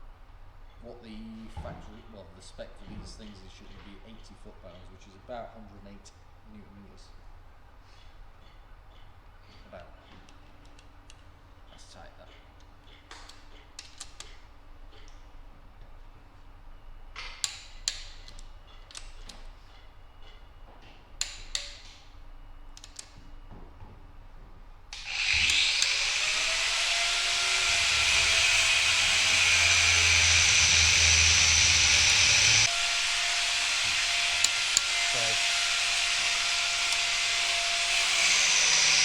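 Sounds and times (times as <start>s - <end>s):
torque wrench ratchet clicks: 25.0s - 32.9s
loud steady hissing: 25.0s - 39.0s.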